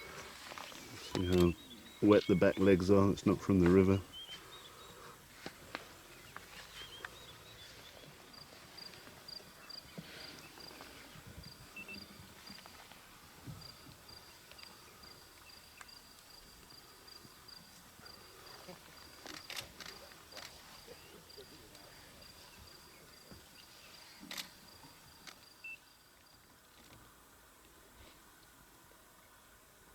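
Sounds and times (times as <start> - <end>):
small clicks: 24.2 - 24.6.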